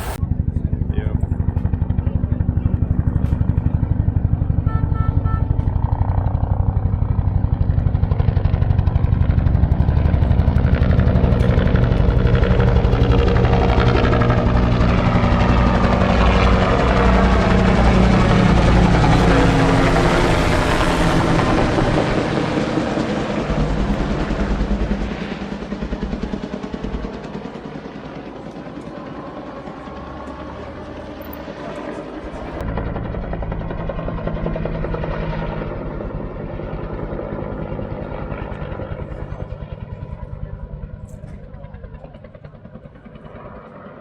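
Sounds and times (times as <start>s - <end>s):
truck engine running: 0.0s - 2.1s, 8.8s - 25.2s.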